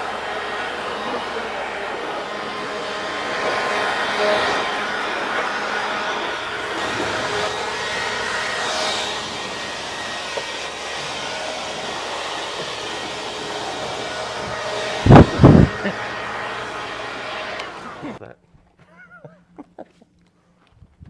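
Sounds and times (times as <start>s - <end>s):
air blowgun hissing: 0.0s - 18.2s
short loud air blasts: 0.0s - 18.2s.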